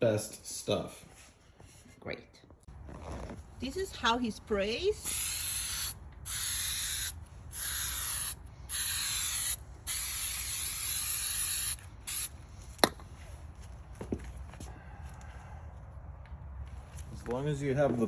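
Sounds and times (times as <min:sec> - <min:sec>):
aerosol spray hissing: 0:05.0 - 0:12.3.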